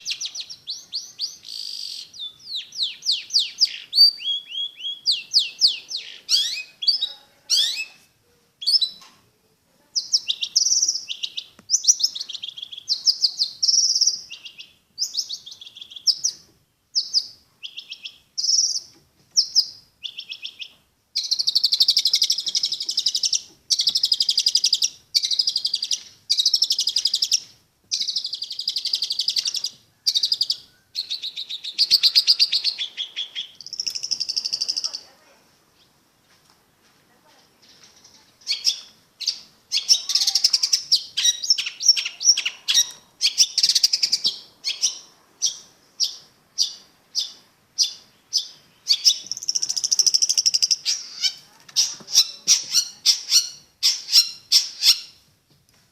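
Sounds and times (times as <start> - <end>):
bird singing: 0.0 - 8.0, 8.6 - 9.0, 10.0 - 35.1, 37.6 - 55.2
harsh bird chattering: 0.0 - 8.0, 28.0 - 35.1, 37.6 - 55.2.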